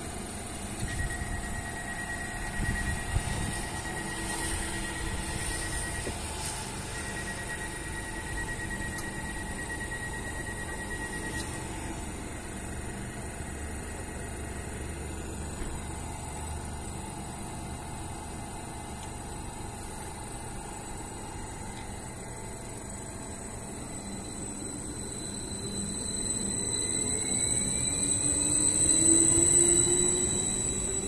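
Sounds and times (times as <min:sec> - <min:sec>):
electrical hum: 0:00.0 - 0:31.0
traction motors whining: 0:00.0 - 0:31.0.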